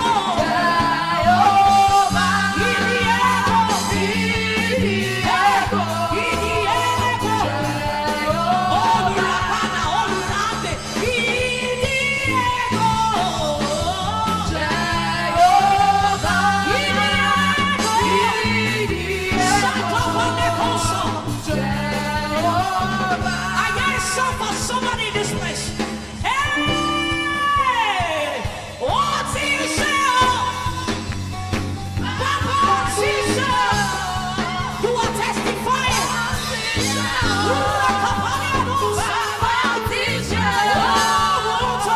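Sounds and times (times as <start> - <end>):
woman singing a gospel song: 0.0 - 41.9
instrumental accompaniment: 25.0 - 41.9.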